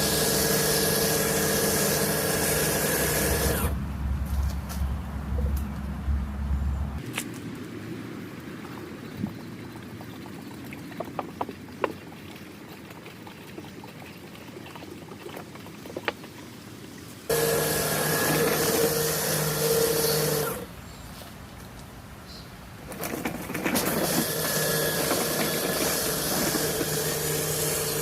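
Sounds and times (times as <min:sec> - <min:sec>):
pressure washer pump hum: 0:00.0 - 0:04.6, 0:17.3 - 0:20.8, 0:22.9 - 0:28.0
water spray hissing: 0:24.0 - 0:28.0.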